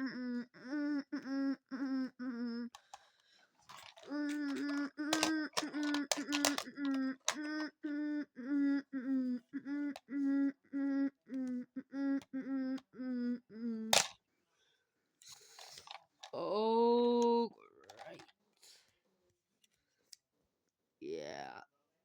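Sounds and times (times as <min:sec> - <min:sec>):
person humming wordless notes: 0:00.0 - 0:02.8, 0:04.0 - 0:14.1.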